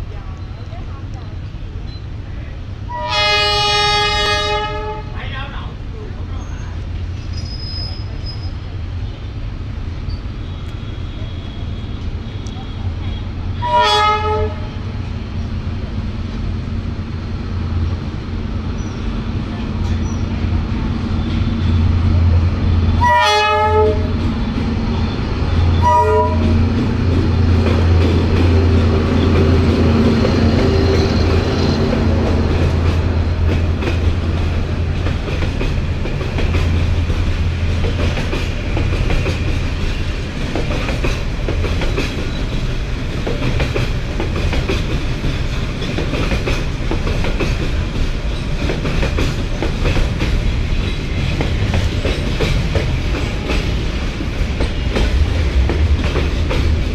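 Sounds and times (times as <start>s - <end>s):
diesel locomotive engine drone: 0.0s - 56.9s
train horn blasts: 2.9s - 5.2s, 12.8s - 14.8s, 22.8s - 24.2s, 25.0s - 26.8s
train wheels clickety-clack: 17.8s - 56.9s.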